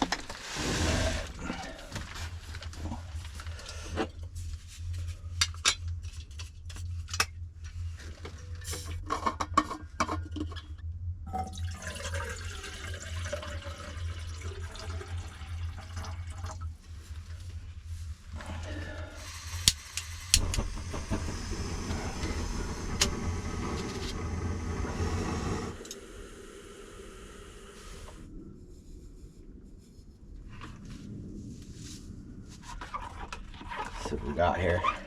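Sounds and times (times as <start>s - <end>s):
steady low hum: 0.4s - 32.9s
liquid pouring: 11.4s - 16.7s.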